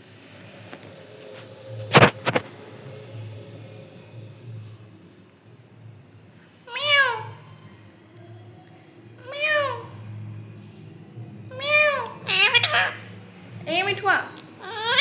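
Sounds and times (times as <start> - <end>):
parrot calling: 6.7 - 7.5, 9.2 - 10.0, 11.5 - 15.0.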